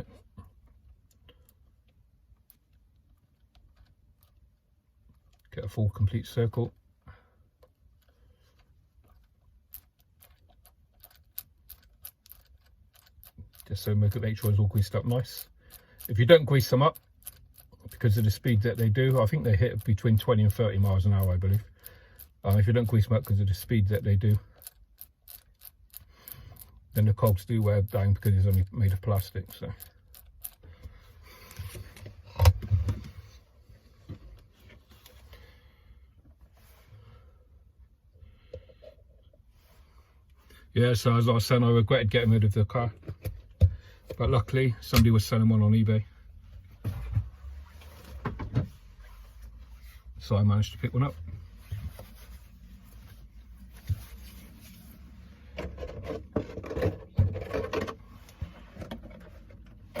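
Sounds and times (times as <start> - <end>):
small plastic parts rattling: 9.0 - 30.8.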